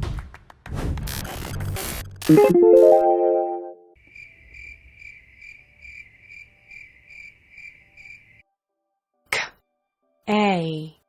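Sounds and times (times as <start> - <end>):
chime-like musical flourish: 2.3 - 3.9
cricket chirps: 4.0 - 8.4.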